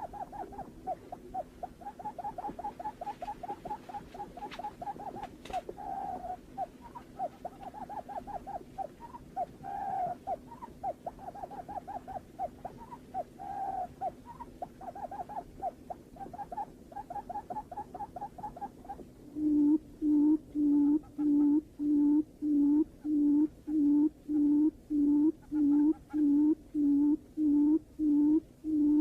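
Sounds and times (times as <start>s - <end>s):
buttonquail hooting call: 0.0s - 29.0s.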